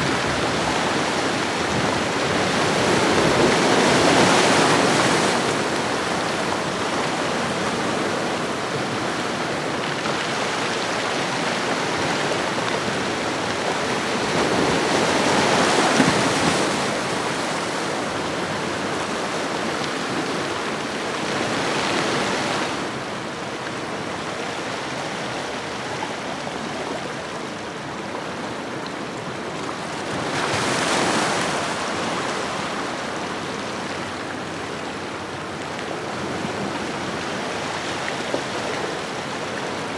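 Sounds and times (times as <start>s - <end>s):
ocean waves washing ashore: 0.0s - 39.9s.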